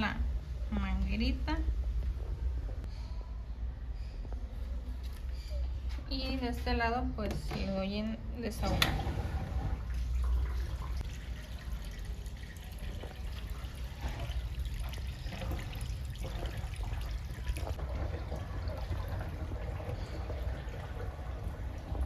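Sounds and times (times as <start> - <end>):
water draining from washing machine: 8.4 - 22.0.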